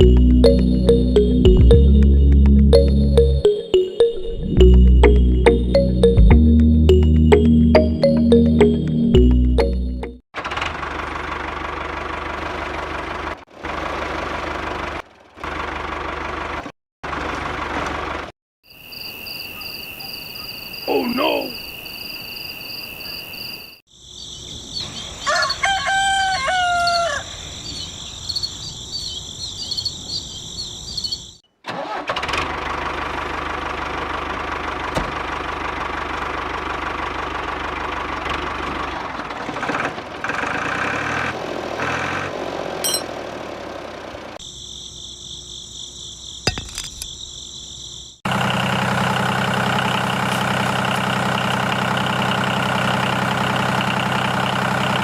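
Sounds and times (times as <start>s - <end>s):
engine idling: 10.4s - 18.3s, 32.2s - 41.1s, 48.3s - 55.0s
rooster crowing: 25.2s - 27.6s.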